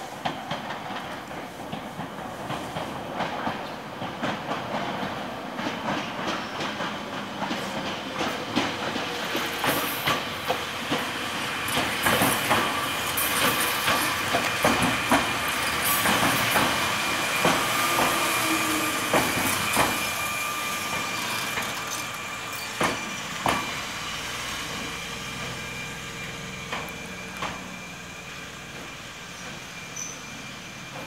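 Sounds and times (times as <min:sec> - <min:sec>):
wheels clicking over track joints: 0:00.2 - 0:20.2, 0:20.9 - 0:27.8
electric train running: 0:00.7 - 0:31.0.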